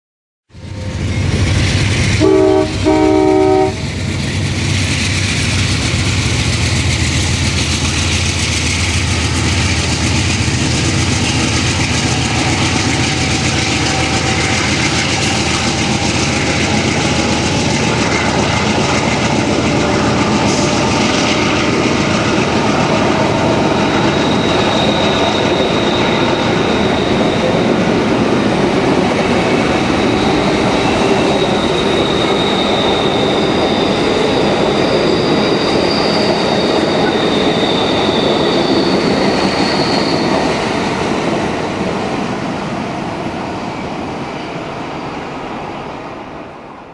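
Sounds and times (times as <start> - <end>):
train wheels clattering on rails: 0.7 - 46.5
train horn blasts: 2.2 - 3.9, 12.0 - 14.9
high wheel squeal: 7.0 - 17.8, 20.0 - 46.6.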